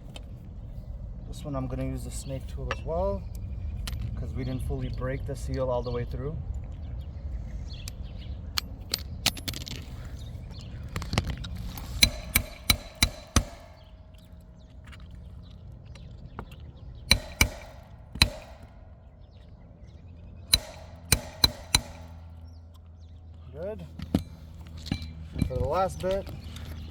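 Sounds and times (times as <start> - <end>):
hammer striking metal: 11.7 - 14.0, 17.1 - 19.0, 20.5 - 22.5.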